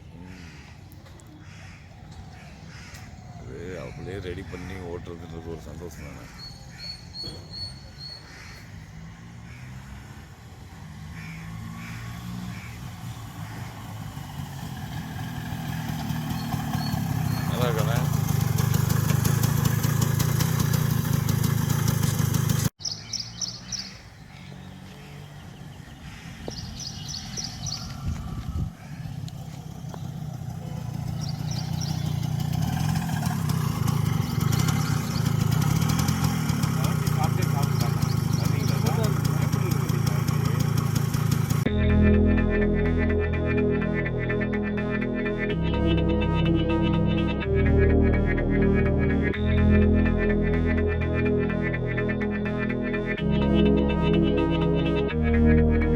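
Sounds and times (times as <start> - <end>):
bird calling: 0.0 - 10.3, 11.0 - 14.2, 15.6 - 20.0, 22.8 - 40.1
motorcycle engine idling: 0.2 - 10.9, 11.5 - 42.0
high chirps: 16.2 - 17.8, 22.8 - 24.5, 31.1 - 33.0.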